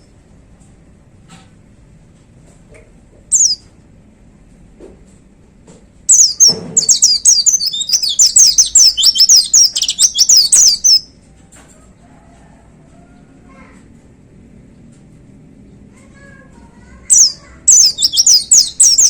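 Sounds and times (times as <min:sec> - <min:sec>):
bird singing high notes: 0:06.1 - 0:11.0, 0:17.1 - 0:19.0.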